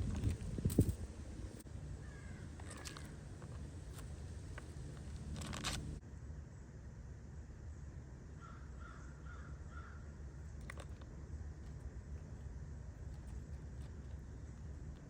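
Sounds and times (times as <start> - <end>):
crow cawing: 2.0 - 3.2, 8.4 - 10.0.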